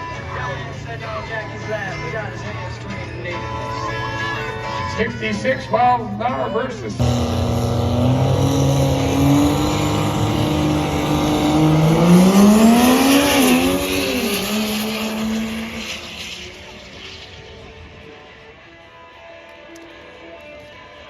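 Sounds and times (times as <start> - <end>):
diesel trucks at full throttle: 0.0 - 6.1, 6.7 - 17.4.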